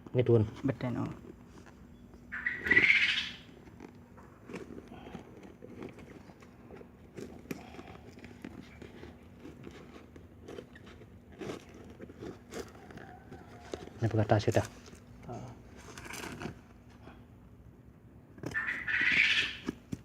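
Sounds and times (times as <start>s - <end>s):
packaging scraping or ripping: 15.7s - 16.8s.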